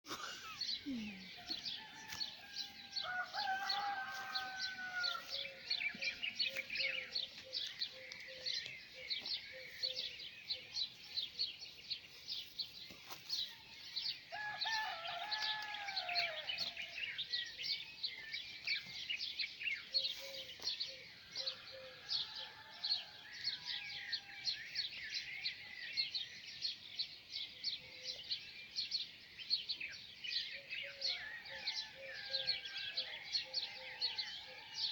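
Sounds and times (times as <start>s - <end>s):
small birds chirping: 0.1s - 34.9s
rooster crowing: 1.5s - 6.0s, 14.3s - 16.8s.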